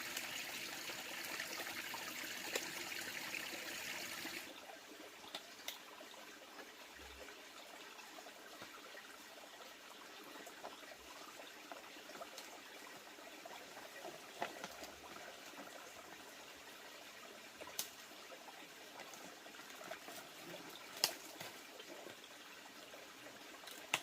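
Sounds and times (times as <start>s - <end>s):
faint trickling water: 0.0s - 24.0s.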